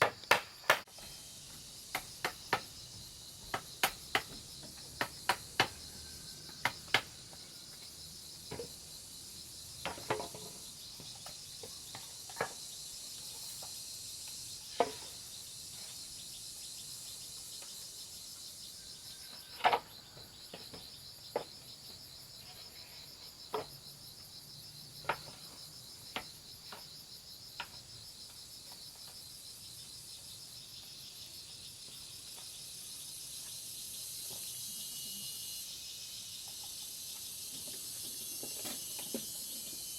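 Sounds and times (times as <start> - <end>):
high insect chorus: 0.0 - 39.9
sharp knocks and taps: 3.4 - 5.8.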